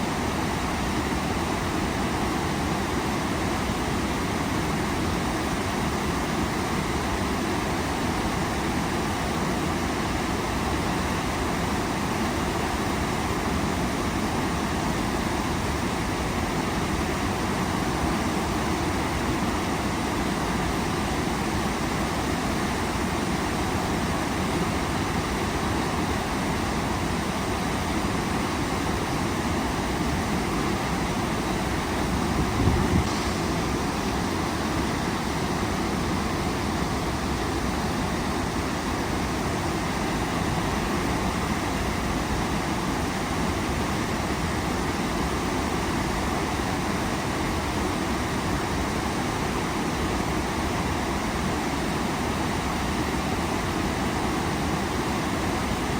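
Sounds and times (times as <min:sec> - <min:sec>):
waterfall rushing: 0:17.4 - 0:55.9.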